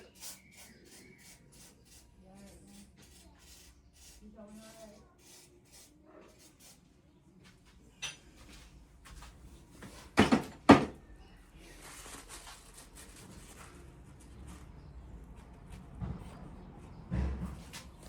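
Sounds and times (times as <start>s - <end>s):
metal tools clunking: 10.2s - 11.0s.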